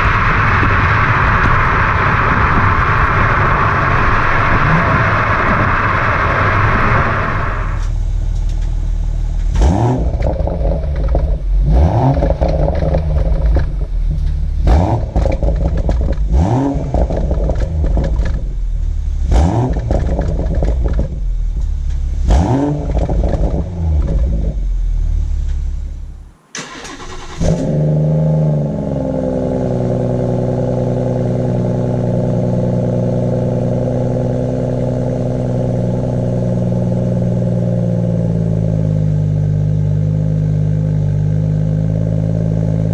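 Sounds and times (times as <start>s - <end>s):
car engine idling: 0.0s - 42.9s
car engine revving: 0.0s - 42.9s
car engine starting: 0.0s - 42.9s
exhaust pops and bangs: 9.4s - 24.6s.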